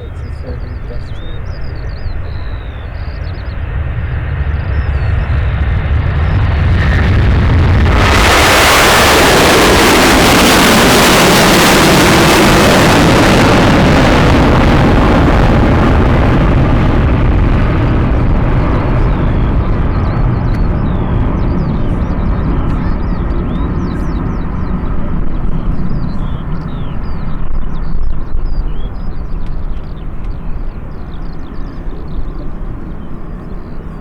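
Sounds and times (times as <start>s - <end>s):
birds chirping: 0.0s - 7.2s, 17.7s - 34.0s
jet airliner taking off: 0.0s - 34.0s.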